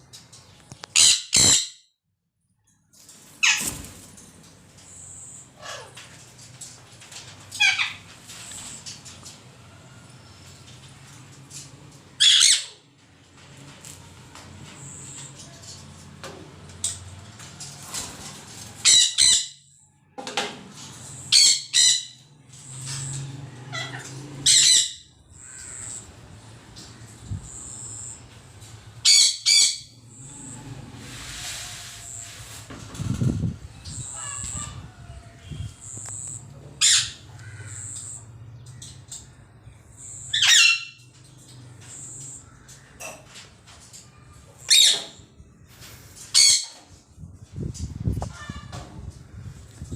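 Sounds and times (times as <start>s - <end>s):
parrot squawking: 0.9s - 1.8s, 7.6s - 8.0s, 12.2s - 12.8s, 23.7s - 26.0s, 29.0s - 29.9s, 36.8s - 37.9s, 40.3s - 41.0s
parrot chirping: 29.0s - 30.0s, 35.8s - 38.2s.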